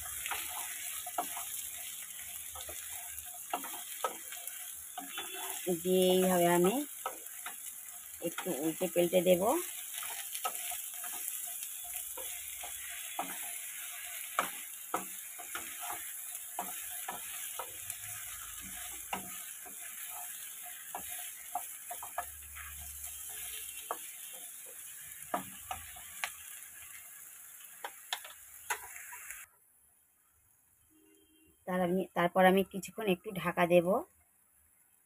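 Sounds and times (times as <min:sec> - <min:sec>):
wooden spatula scraping a pan: 0:00.0 - 0:26.4
vegetables sizzling in oil: 0:00.0 - 0:29.5, 0:31.8 - 0:34.0.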